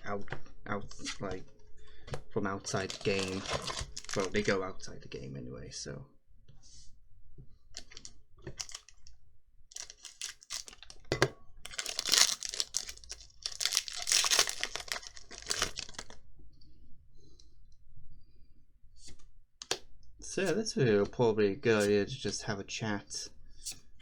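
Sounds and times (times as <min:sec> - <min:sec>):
foil wrapper tearing and crinkling: 0:02.7 - 0:04.5, 0:08.6 - 0:08.9, 0:09.7 - 0:11.0, 0:11.7 - 0:16.2.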